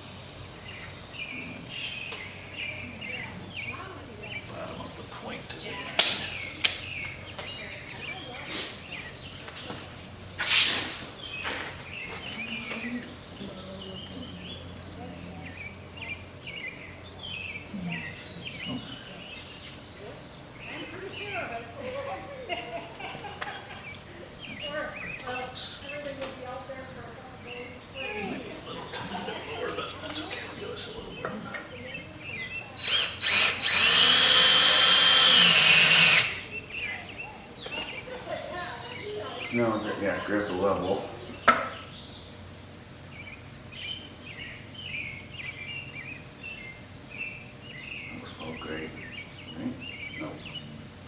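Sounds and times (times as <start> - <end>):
birds chirping: 0.0 - 51.0
power drill driving screw into wood: 32.8 - 36.5.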